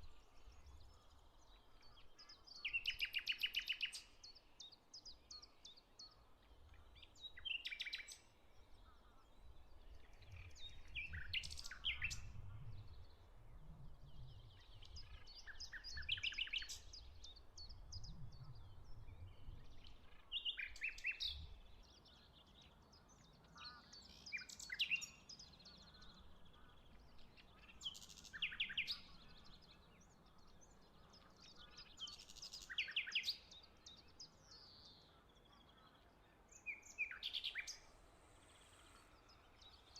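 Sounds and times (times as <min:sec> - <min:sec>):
birds chirping: 0:14.3 - 0:39.9.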